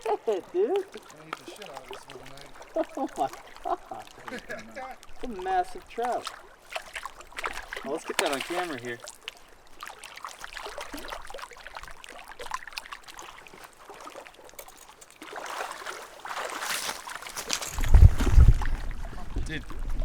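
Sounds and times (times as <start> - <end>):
water splashing and trickling: 0.0 - 20.0.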